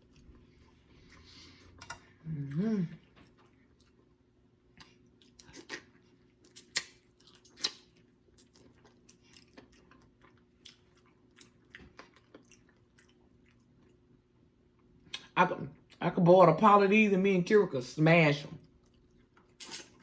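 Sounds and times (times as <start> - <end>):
person chewing bones: 4.7 - 14.1.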